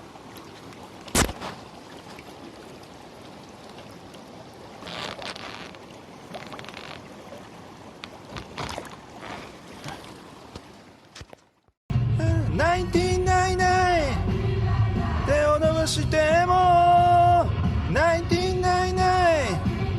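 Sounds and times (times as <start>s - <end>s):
mountain stream flowing: 0.0s - 11.7s.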